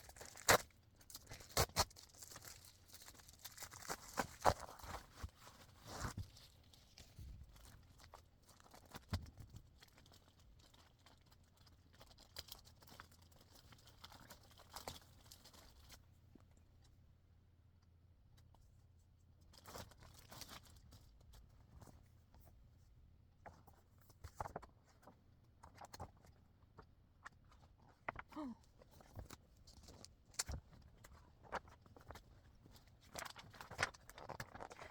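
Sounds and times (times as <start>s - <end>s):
packaging crinkling and tearing: 0.0s - 16.0s, 32.8s - 34.9s.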